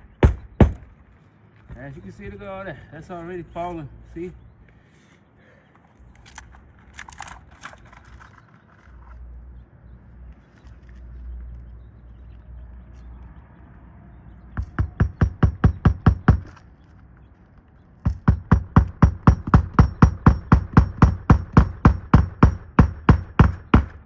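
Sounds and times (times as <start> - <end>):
hammer striking nail: 0.1 - 0.9, 14.6 - 16.6, 18.1 - 24.0.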